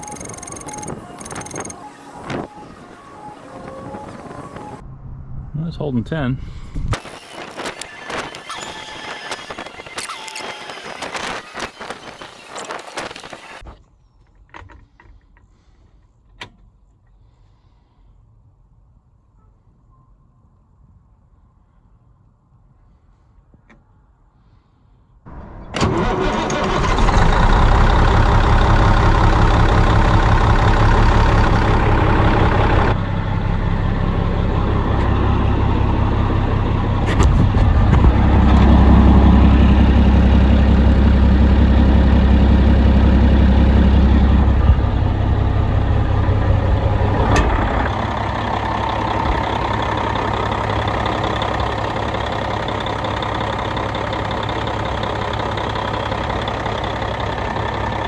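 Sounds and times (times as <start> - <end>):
diesel truck engine idling: 25.3 - 58.0.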